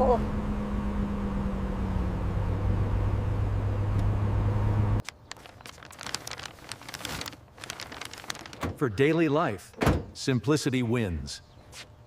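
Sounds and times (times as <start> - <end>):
car engine humming: 0.0 - 5.0.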